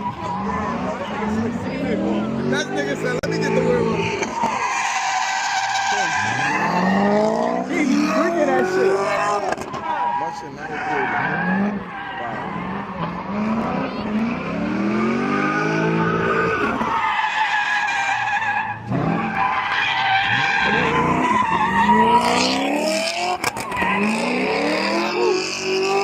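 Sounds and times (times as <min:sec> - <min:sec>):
tires squealing and skidding: 0:00.0 - 0:26.0
car engine revving hard: 0:05.6 - 0:09.6, 0:10.9 - 0:16.8, 0:18.7 - 0:19.4, 0:20.2 - 0:26.0.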